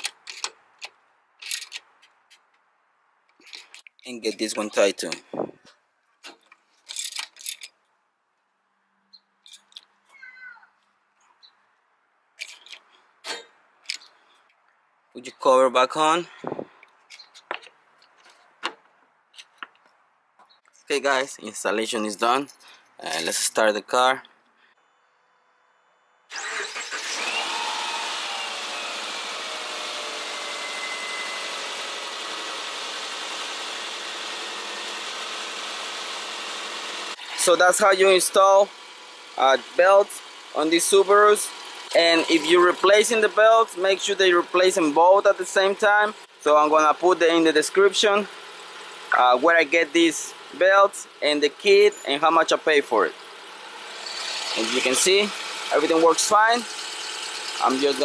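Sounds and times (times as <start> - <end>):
tools clicking against metal: 0.0 - 1.9.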